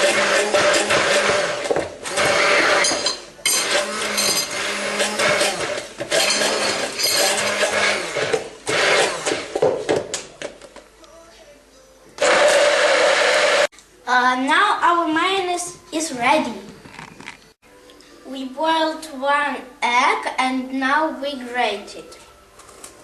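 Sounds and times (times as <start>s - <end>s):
electric blender running: 0.0s - 9.6s, 12.2s - 13.7s.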